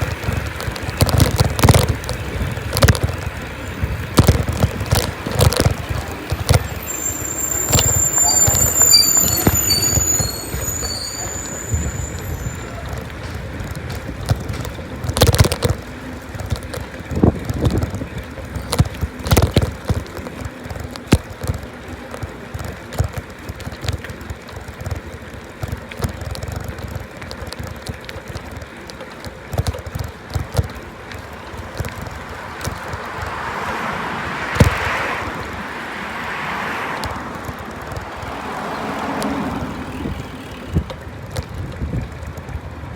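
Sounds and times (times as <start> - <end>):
wind noise on microphone: 0.0 - 21.6, 31.5 - 42.9
bicycle knocks and rattles: 0.0 - 42.9
bicycle rolling rumble: 0.0 - 42.9.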